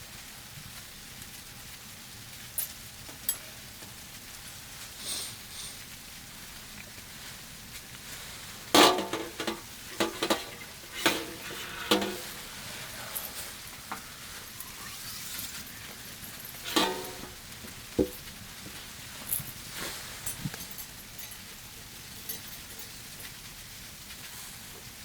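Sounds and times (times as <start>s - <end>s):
faint steady hiss: 0.0s - 25.0s
metal cookware clinking: 8.7s - 18.3s.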